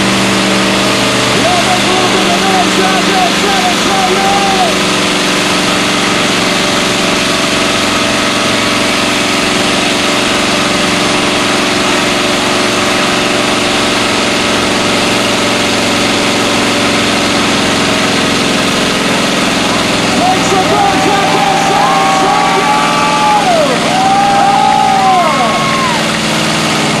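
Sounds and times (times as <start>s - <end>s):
spinning tyres hissing: 0.0s - 27.0s
truck engine at high revs: 0.0s - 27.0s.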